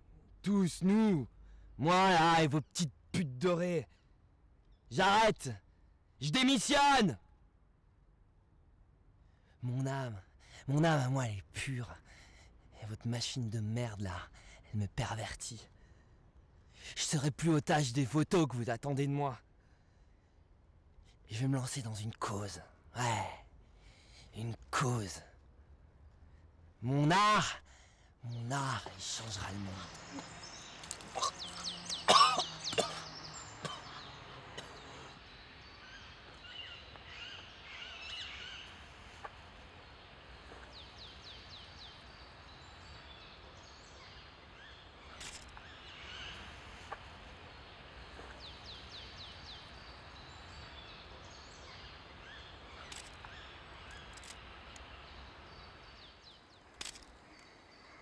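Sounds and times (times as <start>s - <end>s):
birds trilling: 28.2s - 58.0s
faint steady hiss: 33.3s - 58.0s.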